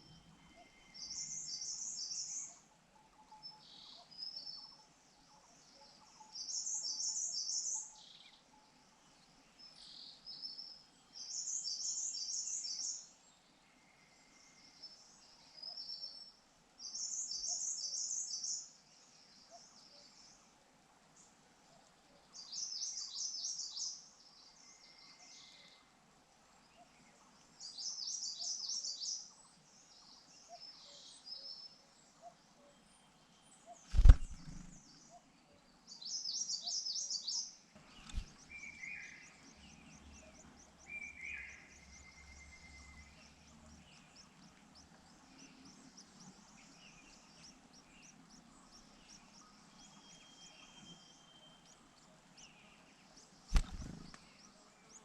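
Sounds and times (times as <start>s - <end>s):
birds chittering: 33.7s - 35.2s, 37.8s - 55.0s.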